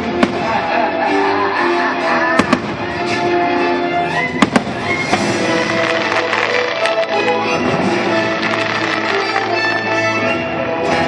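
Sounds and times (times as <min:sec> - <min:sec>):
steady music playing: 0:00.0 - 0:11.0
firework bangs: 0:04.4 - 0:10.0.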